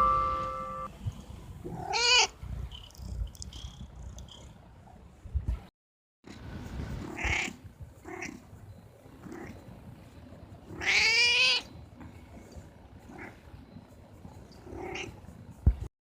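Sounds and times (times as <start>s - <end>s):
cat meowing: 1.8s - 2.3s, 10.7s - 11.7s, 14.7s - 15.2s.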